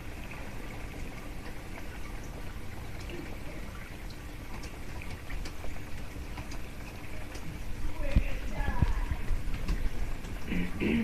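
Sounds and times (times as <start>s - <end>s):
heavy rain pouring: 7.1s - 11.0s.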